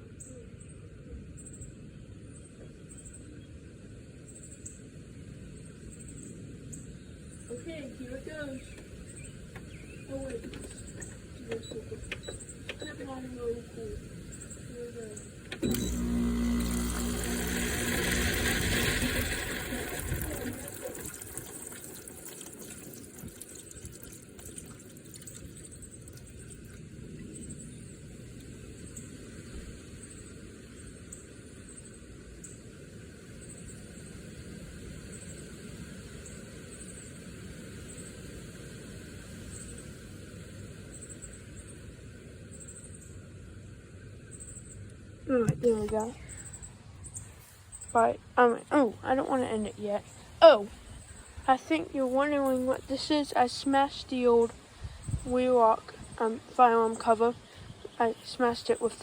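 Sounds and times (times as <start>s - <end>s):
insects chirping in trills: 4.2s - 15.6s, 19.2s - 59.0s
electric fan motor hum: 14.9s - 23.0s.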